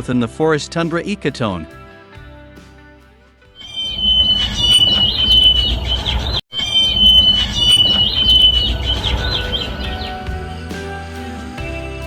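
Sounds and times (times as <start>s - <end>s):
sparrow singing: 3.6s - 10.4s.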